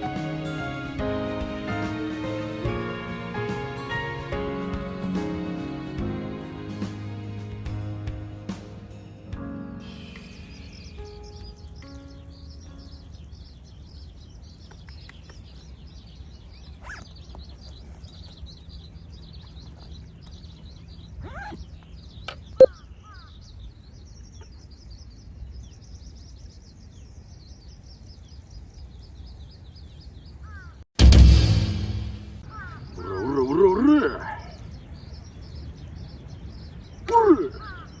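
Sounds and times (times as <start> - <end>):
birds chirping and calling: 9.8 - 30.8, 32.4 - 38.0
low outdoor rumble: 11.4 - 25.8
brief sharp sound: 31.0 - 32.5.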